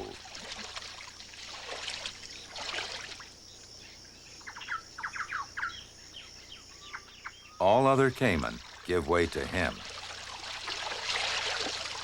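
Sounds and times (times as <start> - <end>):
birds chirping: 3.4 - 9.8.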